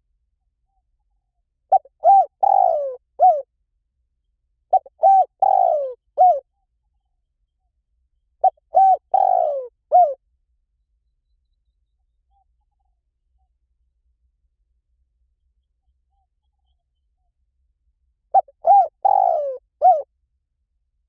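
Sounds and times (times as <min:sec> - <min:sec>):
dove cooing: 0:01.7 - 0:03.4, 0:04.7 - 0:06.4, 0:08.4 - 0:10.2, 0:18.3 - 0:20.1.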